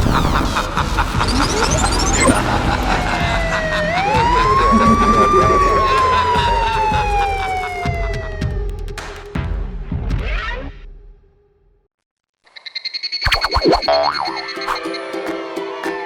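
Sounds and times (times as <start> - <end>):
siren wailing: 1.2 - 8.7.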